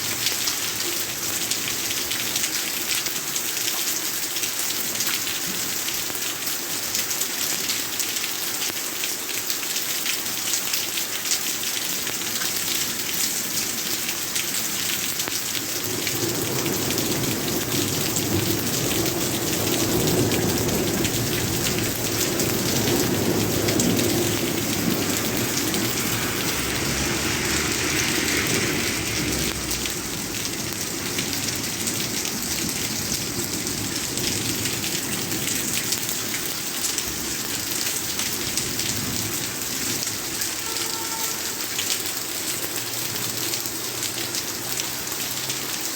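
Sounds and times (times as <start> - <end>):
heavy rain pattering: 0.0 - 45.9
thunder rumble: 15.9 - 35.4.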